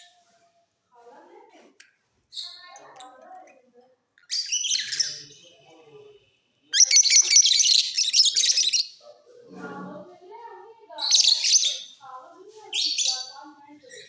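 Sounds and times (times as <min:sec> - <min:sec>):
lovebirds chirping: 0:04.2 - 0:05.8, 0:06.7 - 0:09.0, 0:10.9 - 0:14.0.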